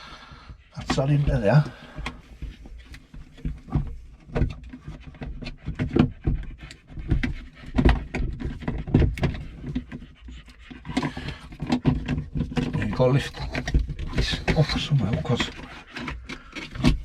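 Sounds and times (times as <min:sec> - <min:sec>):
plastic knocks and clatter: 0:00.4 - 0:17.0.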